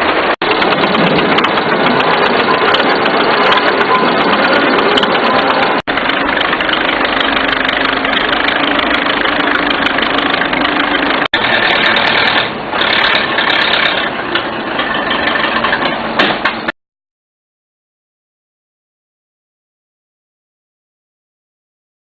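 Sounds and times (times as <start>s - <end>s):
tractor engine running rough: 0.0s - 16.8s.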